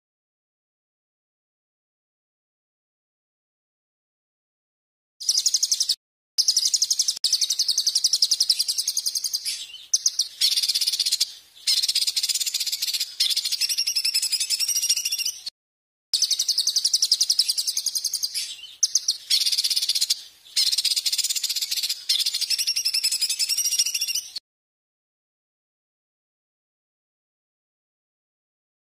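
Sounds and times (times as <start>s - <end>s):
songbird buzzy trills: 5.2s - 15.5s, 16.2s - 24.4s.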